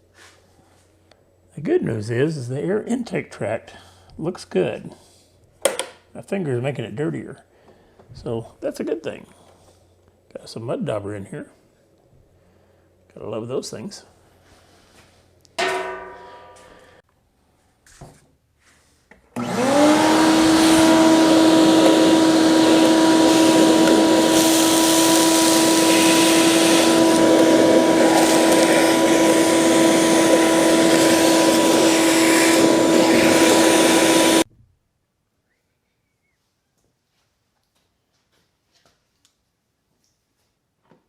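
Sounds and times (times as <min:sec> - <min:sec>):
shop vacuum motor whine: 0:19.4 - 0:34.5.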